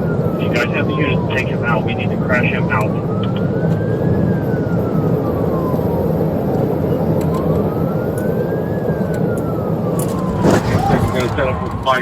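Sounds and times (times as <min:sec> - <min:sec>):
police siren wailing: 0:00.0 - 0:12.0
car driving at high speed: 0:09.6 - 0:12.0.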